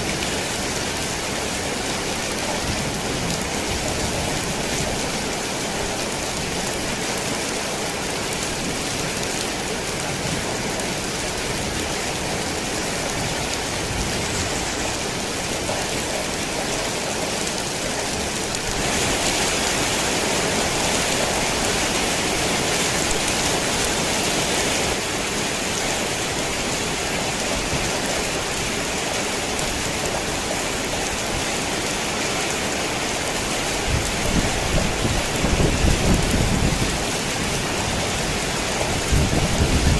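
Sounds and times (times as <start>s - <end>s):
rain on a tin roof: 0.0s - 39.9s
thunder rumbling: 33.8s - 39.9s.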